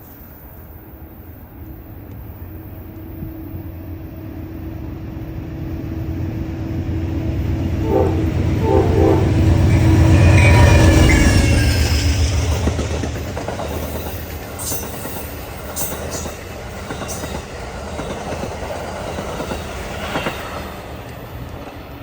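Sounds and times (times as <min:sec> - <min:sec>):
diesel train engine and wheel rumble: 0:00.0 - 0:22.0
train horn blasts: 0:07.8 - 0:11.6.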